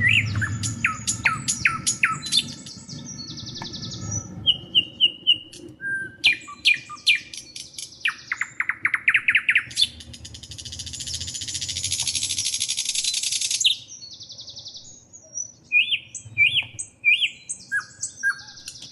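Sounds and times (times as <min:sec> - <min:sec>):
birds chirping: 0:00.0 - 0:18.9
buzzy bird trill: 0:00.0 - 0:18.9.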